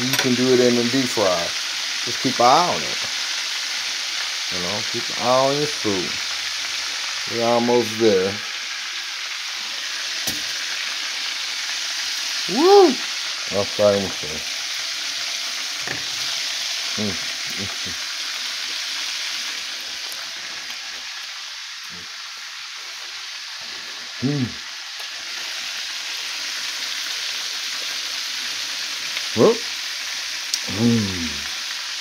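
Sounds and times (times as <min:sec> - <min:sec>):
chicken sizzling in oil: 0:00.0 - 0:32.0
man's short vocal sounds: 0:12.5 - 0:13.0, 0:24.2 - 0:24.6, 0:30.6 - 0:31.5.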